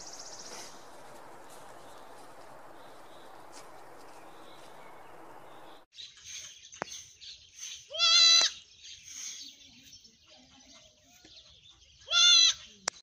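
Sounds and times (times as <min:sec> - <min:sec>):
goat bleating: 0:07.9 - 0:08.6, 0:12.1 - 0:12.6.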